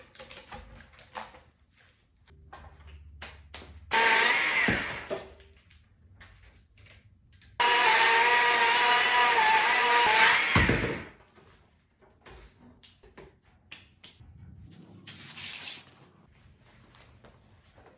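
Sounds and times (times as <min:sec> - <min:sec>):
chainsaw cutting wood: 0:03.9 - 0:05.1, 0:07.6 - 0:11.2.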